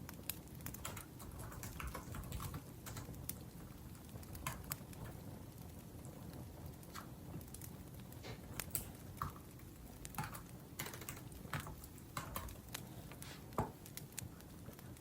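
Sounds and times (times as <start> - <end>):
laptop keyboard typing: 0.7 - 3.3, 10.2 - 12.8.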